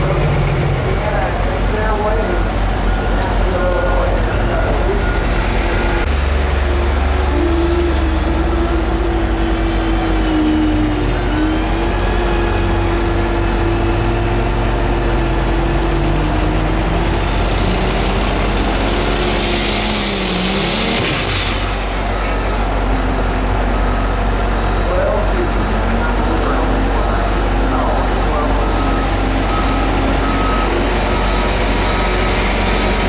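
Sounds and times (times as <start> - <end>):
diesel engine under load: 0.0 - 33.0
turbo whistle: 4.5 - 11.7.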